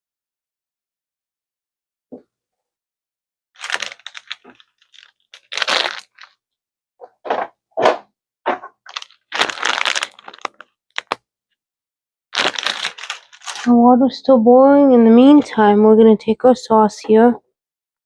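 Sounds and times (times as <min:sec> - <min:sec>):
packaging crackling: 0:03.6 - 0:06.4, 0:08.8 - 0:11.2, 0:12.4 - 0:13.7.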